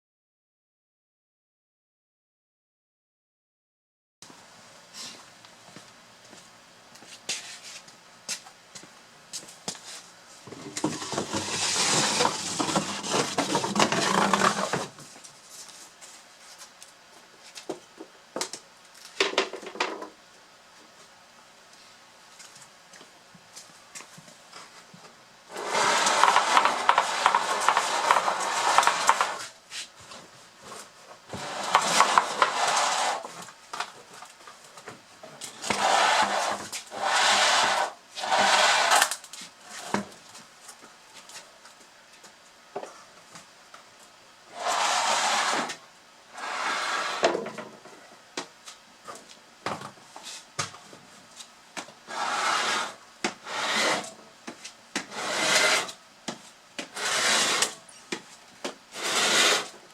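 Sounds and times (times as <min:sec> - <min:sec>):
firewood scraping down pipe: 0:10.5 - 0:15.0, 0:25.5 - 0:29.5, 0:31.3 - 0:33.4, 0:35.6 - 0:40.1, 0:44.5 - 0:45.8, 0:52.1 - 0:54.1, 0:55.1 - 0:56.0, 0:56.9 - 0:57.8, 0:58.9 - 0:59.8.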